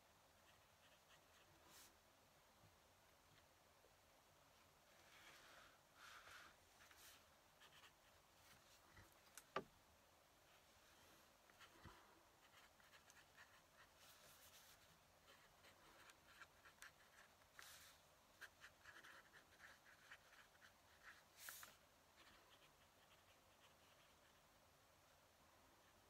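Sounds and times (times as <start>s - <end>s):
pen nib scratching on paper: 11.5s - 24.4s.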